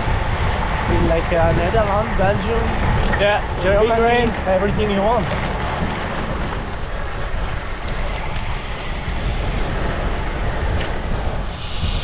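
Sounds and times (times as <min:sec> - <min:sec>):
high hiss: 0:00.0 - 0:06.0, 0:11.2 - 0:12.0
wind buffeting microphone: 0:00.0 - 0:12.0.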